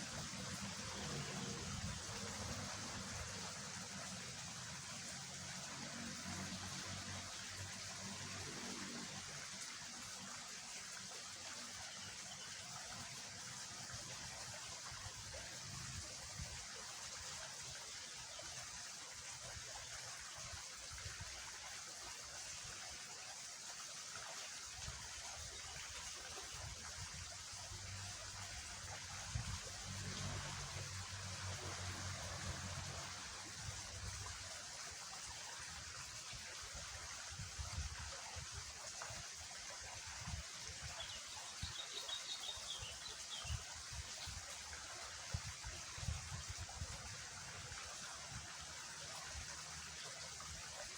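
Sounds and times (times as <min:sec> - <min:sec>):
water rushing in a ditch: 0:00.0 - 0:50.9.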